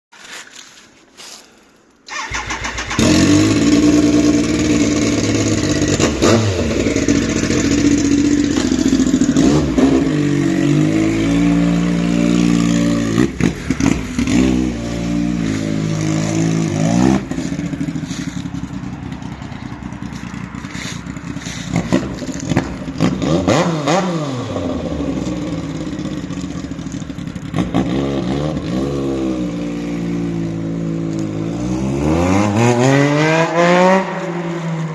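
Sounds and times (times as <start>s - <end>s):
unmuffled motorcycle engine revving: 2.1s - 34.9s.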